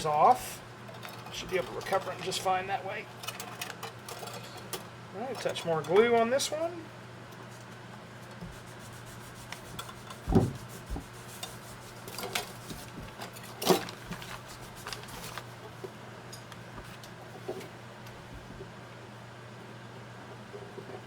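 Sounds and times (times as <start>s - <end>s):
steady low hum: 4.1s - 18.8s
knocks on wood: 10.2s - 11.2s.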